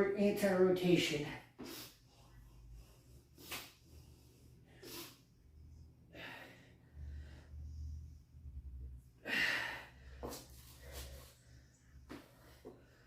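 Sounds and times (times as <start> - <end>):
person breathing hard: 6.1 - 8.2, 9.2 - 13.0.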